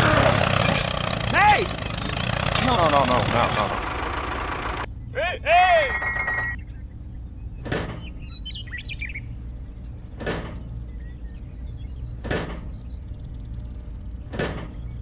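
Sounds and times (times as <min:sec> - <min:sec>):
bird chirp: 0:06.1 - 0:15.0
steady low hum: 0:06.5 - 0:15.0.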